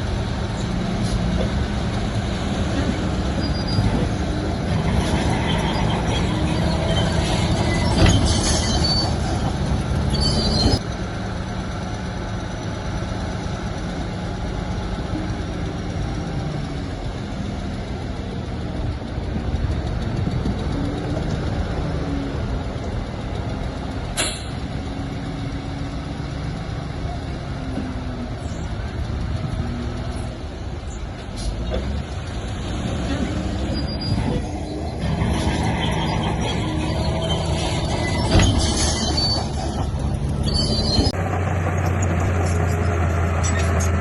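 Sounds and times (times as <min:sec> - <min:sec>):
diesel machinery running: 0:00.0 - 0:44.0
metallic squeaks and clanks: 0:02.7 - 0:10.8, 0:33.0 - 0:41.2, 0:41.8 - 0:44.0.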